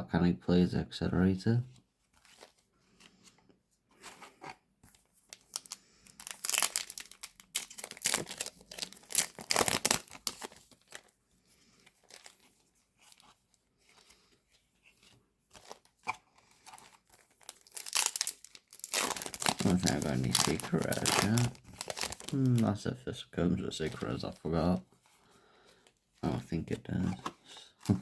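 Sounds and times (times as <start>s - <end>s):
cards being handled: 3.9s - 11.1s, 11.7s - 22.7s, 23.8s - 24.4s, 26.4s - 28.0s
foil wrapper tearing and crinkling: 5.3s - 11.1s, 12.0s - 12.4s, 16.8s - 22.6s.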